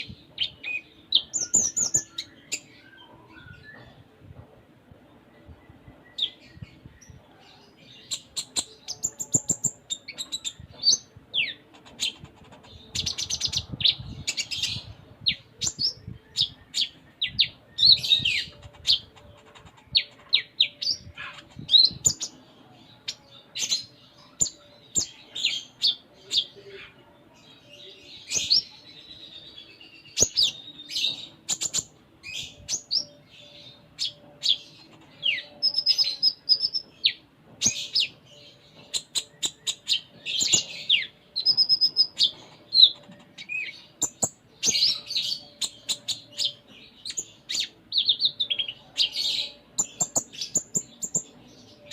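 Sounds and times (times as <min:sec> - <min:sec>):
bird singing fast chirps: 0:30.1 - 0:37.2, 0:37.8 - 0:51.9.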